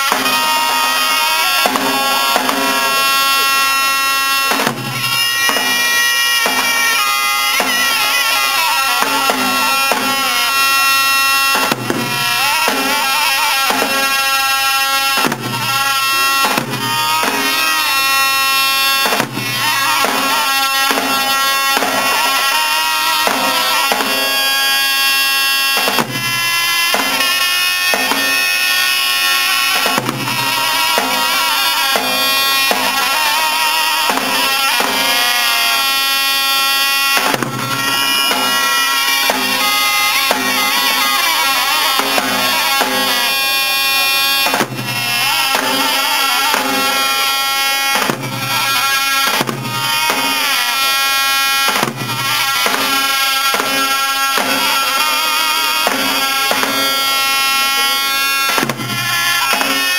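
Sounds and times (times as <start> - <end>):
long-necked lute improvised melody: 37.5 - 47.2.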